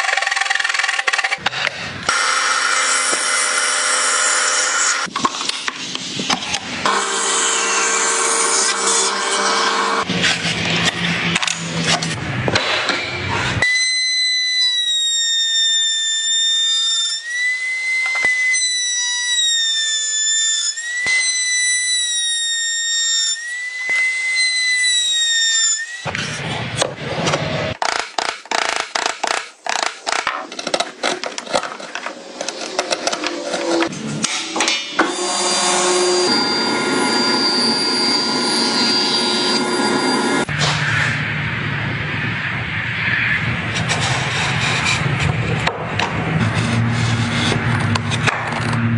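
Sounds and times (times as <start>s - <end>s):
sawing on wood: 1.3s - 12.2s
high whistling tone: 12.9s - 26.1s, 33.1s - 43.4s.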